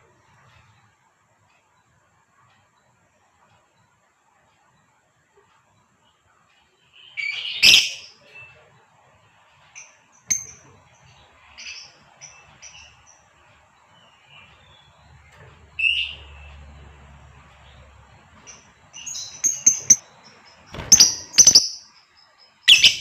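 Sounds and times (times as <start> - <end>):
lovebird chirping: 6.9 - 8.8, 9.7 - 23.0.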